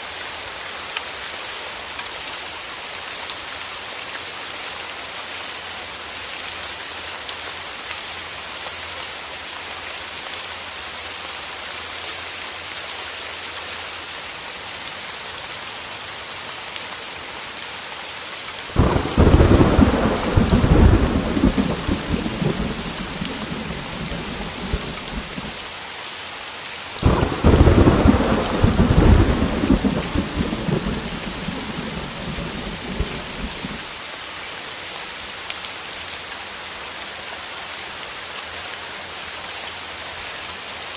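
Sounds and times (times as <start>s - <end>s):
heavy rain on a window: 0.0s - 36.5s
thunder cracking and rumbling: 18.8s - 25.6s, 27.0s - 33.8s.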